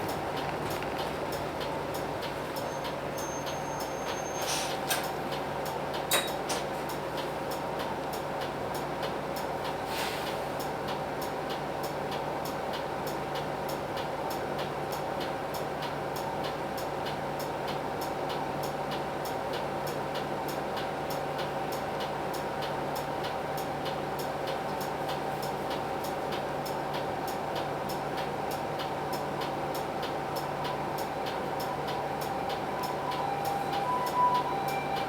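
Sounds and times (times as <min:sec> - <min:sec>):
bus diesel engine running: 0:00.0 - 0:13.6, 0:19.1 - 0:35.0.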